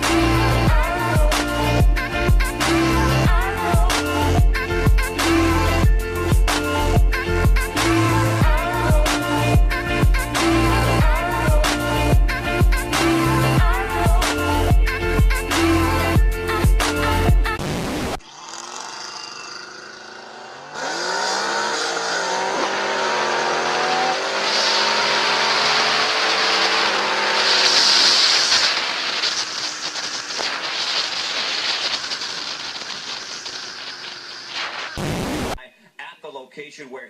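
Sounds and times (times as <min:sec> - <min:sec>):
vehicle engine revving: 0:16.9 - 0:35.3
loud hiss: 0:26.3 - 0:35.6.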